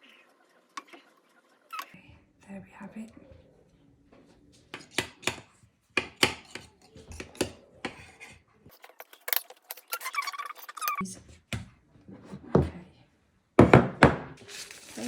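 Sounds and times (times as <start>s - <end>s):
squeaky scrape: 0.0s - 2.0s, 8.8s - 11.0s.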